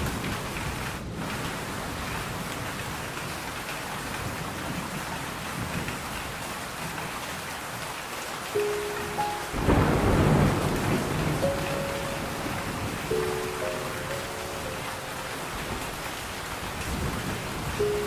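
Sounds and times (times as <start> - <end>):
steady rain falling: 0.0 - 18.0
held musical notes: 8.6 - 16.1, 17.8 - 18.0
thunder rumble: 9.2 - 18.0.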